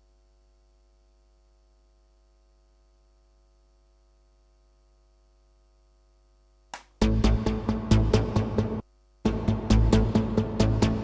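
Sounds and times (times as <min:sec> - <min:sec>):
faint electrical hum: 0:00.0 - 0:08.0.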